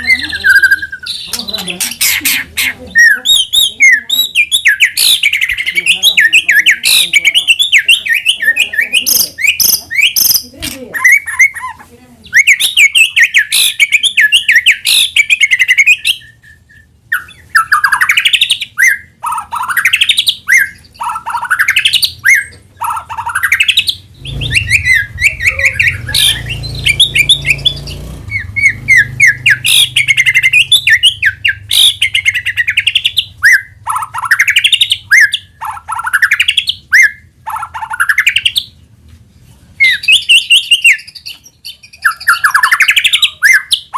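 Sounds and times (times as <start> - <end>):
bird singing whistled phrases: 0.0 - 1.3, 23.2 - 37.2, 39.8 - 43.9.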